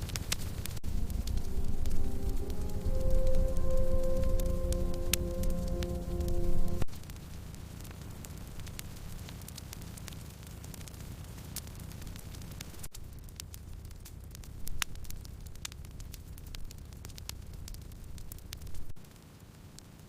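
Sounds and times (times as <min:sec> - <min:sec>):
wood fire crackling: 0:00.0 - 0:20.0
music track: 0:00.8 - 0:06.9.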